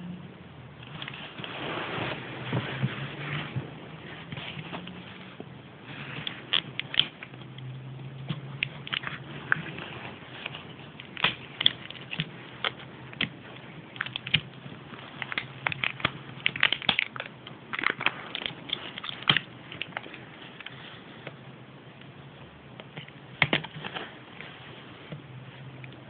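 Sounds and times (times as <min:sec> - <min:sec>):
plastic packaging crinkling: 0:00.9 - 0:21.4.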